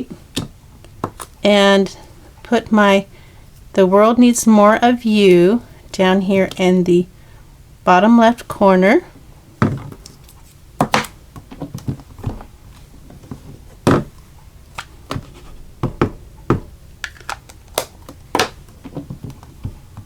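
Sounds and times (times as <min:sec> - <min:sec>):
stamping supplies tapping and clicking: 0:14.8 - 0:20.0.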